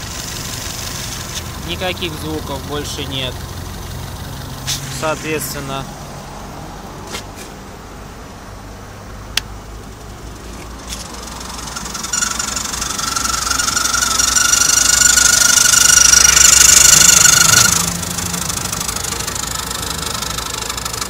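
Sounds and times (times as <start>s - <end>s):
car engine idling: 0.0s - 21.0s
high steady whine: 9.7s - 21.0s.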